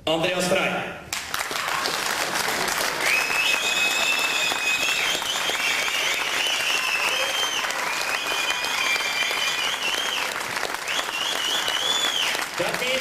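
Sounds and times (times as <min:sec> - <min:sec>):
audience applauding: 0:01.1 - 0:13.0
long high whistles: 0:03.0 - 0:12.4.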